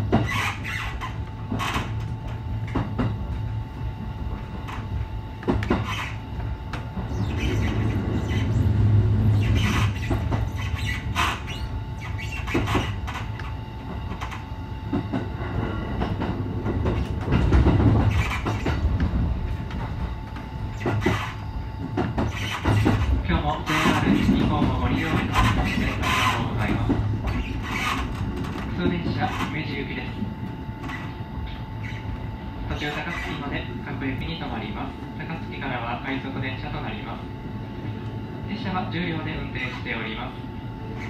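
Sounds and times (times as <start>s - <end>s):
train rumble: 0.0s - 41.0s
wheels clacking over rail joints: 16.0s - 19.8s, 20.7s - 29.5s.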